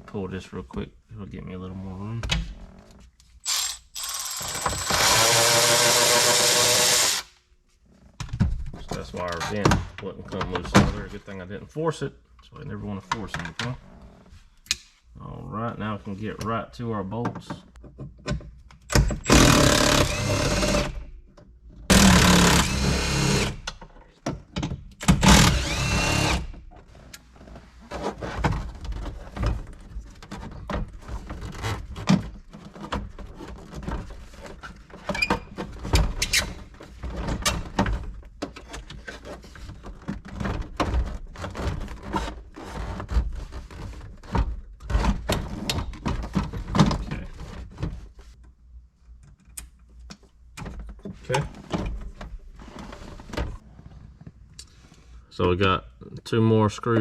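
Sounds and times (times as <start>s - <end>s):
power tool bursts: 3.5s - 7.3s, 19.3s - 21.0s, 21.9s - 23.6s, 25.2s - 26.5s.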